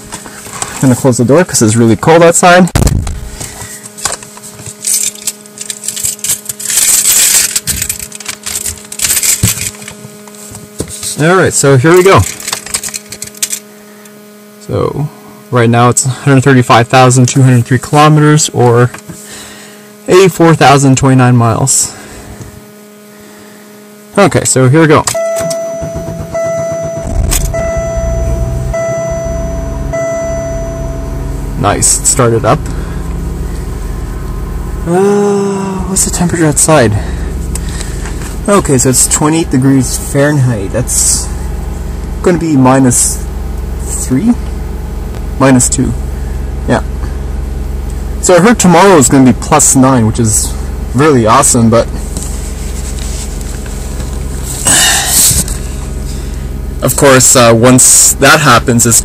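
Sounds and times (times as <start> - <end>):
rustling inside car: 0.0 - 1.2, 2.6 - 11.3, 12.1 - 14.3, 25.0 - 34.8, 35.9 - 42.4, 50.7 - 56.3
faint steady hum: 0.0 - 59.0
electronic chime tone: 25.1 - 36.7.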